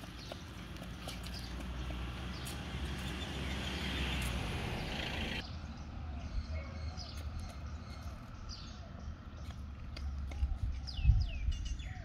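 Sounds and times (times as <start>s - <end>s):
birds chirping: 0.0s - 12.0s
wind rumble on microphone: 10.1s - 12.0s.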